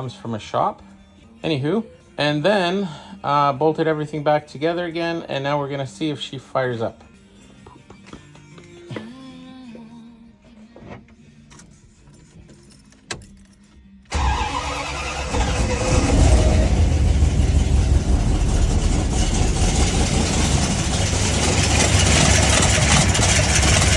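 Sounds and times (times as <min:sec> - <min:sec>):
car engine starting and running: 0:14.1 - 0:23.9.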